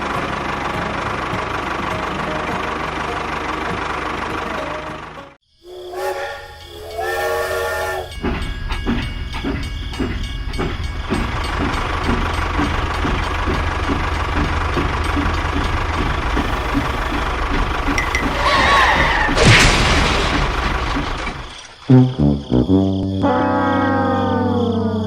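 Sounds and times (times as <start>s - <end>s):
small machine rumbling: 0.0s - 22.0s
horn-like tone: 5.7s - 8.2s.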